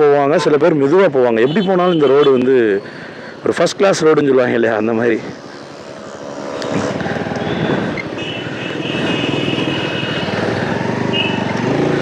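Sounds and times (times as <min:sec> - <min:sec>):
motorcycle engine running: 0:05.3 - 0:12.0.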